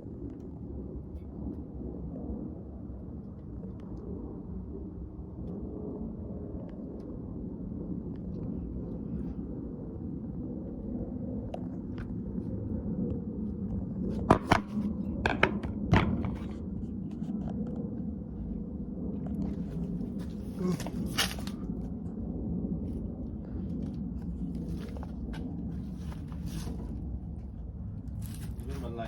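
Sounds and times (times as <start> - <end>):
steady low hum: 0.0 - 29.0
sharp knocks and clicks: 14.2 - 16.6.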